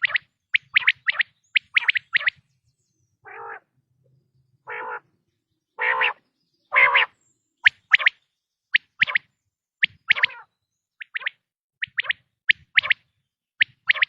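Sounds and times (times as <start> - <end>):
quail sharp whit calls: 0.0 - 2.4, 3.2 - 3.7, 4.7 - 5.1, 5.8 - 14.0
quail rasping nasal notes: 5.8 - 6.2.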